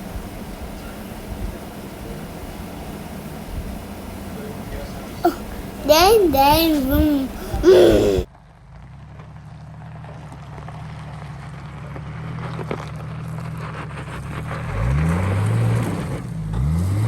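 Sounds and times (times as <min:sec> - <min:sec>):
car engine running and revving: 0:10.8 - 0:17.0.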